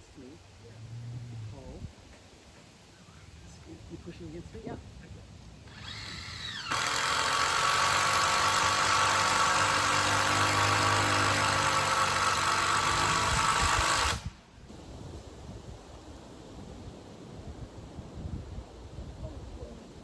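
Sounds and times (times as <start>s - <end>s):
power tool whining: 5.7s - 14.4s.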